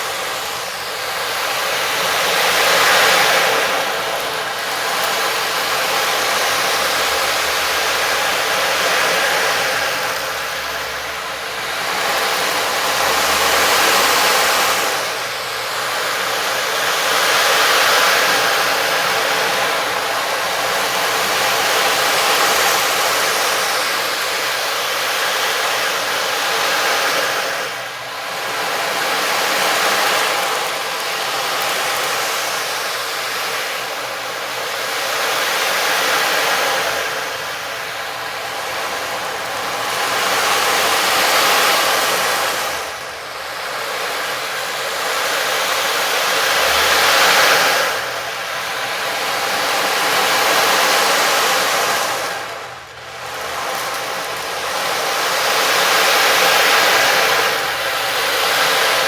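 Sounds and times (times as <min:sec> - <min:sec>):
dense hissing wash: 0:00.0 - 0:59.0.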